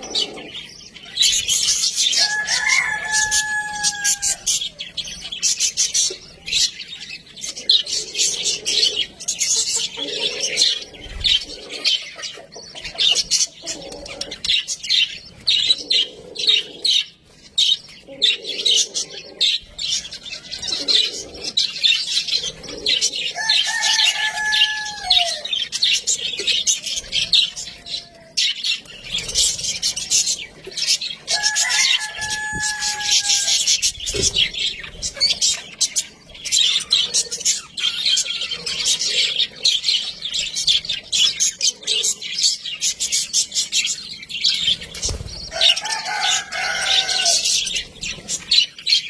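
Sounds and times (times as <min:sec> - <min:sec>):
budgerigars chattering and warbling: 0:00.0 - 0:49.0.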